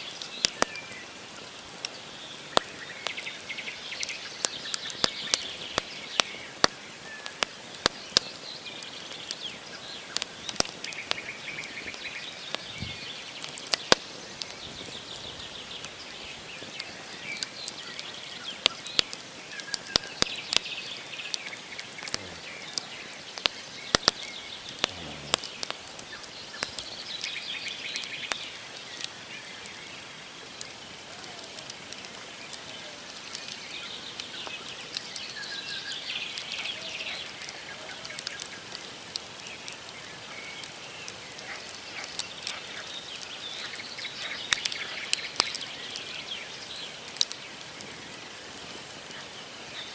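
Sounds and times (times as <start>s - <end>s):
wood fire crackling: 0.0s - 49.9s
birds chirping: 8.0s - 30.0s.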